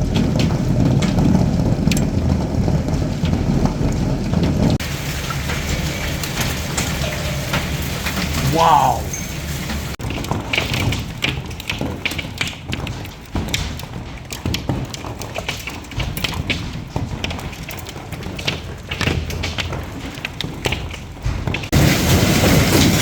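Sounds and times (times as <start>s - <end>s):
hailstones pelting down: 0.0s - 23.0s.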